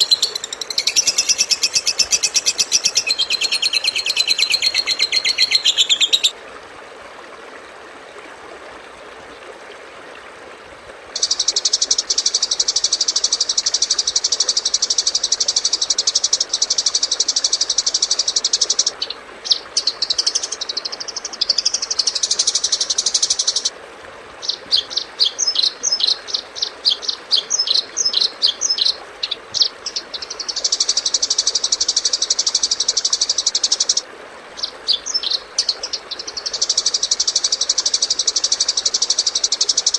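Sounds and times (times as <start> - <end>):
bird chirps: 0.0 - 6.3.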